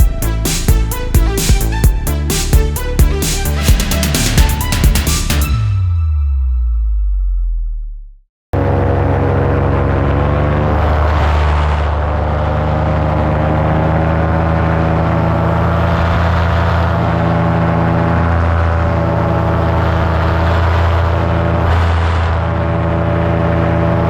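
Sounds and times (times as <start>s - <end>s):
paramotor engine and propeller: 8.6s - 24.0s.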